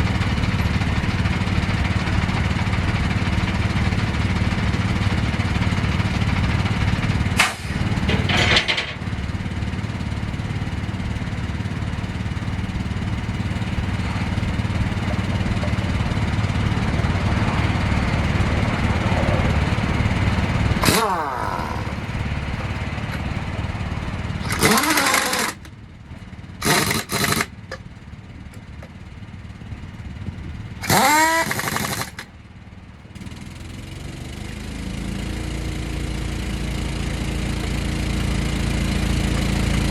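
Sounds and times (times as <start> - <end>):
engine running: 0.0 - 39.9
air impact wrench bursts: 7.3 - 9.1, 20.8 - 22.3, 24.3 - 25.7, 26.6 - 27.9, 30.8 - 32.3.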